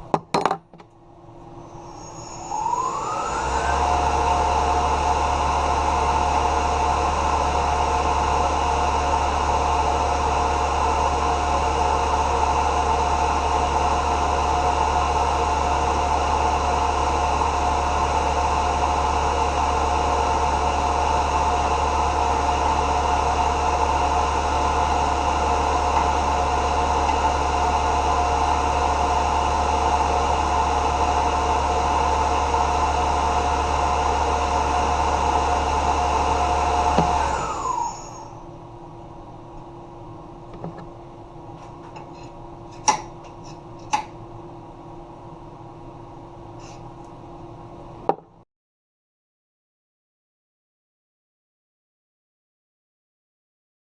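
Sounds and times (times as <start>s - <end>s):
machine whine: 0.9s - 42.8s
milling machine humming: 1.2s - 39.7s.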